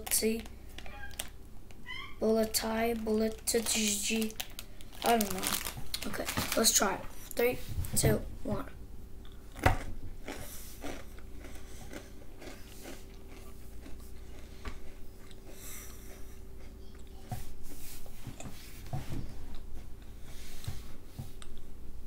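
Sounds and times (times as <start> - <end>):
boy chewing crunchy snack: 9.2 - 17.2.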